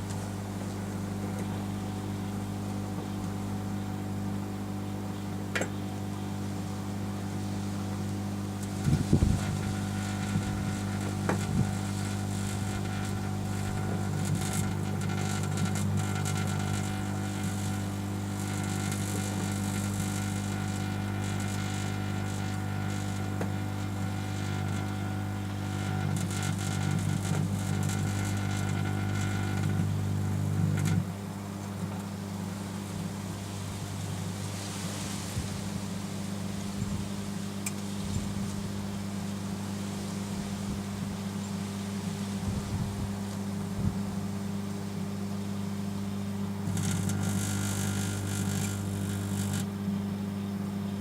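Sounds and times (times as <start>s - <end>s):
microwave oven humming: 0.0s - 51.0s
arcing crackles and pops: 8.6s - 31.0s, 46.6s - 49.7s.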